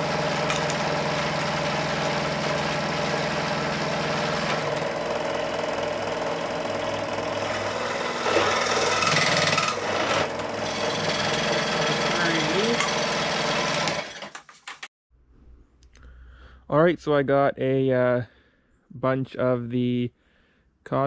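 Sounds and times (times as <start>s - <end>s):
power tool cutting pipe: 0.0s - 14.4s.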